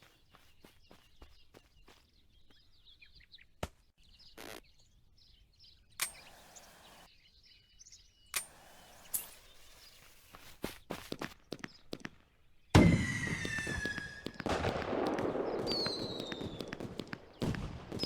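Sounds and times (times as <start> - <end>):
fireworks crackling hiss: 6.0 - 7.1, 12.8 - 18.0
fireworks bangs: 11.1 - 18.0.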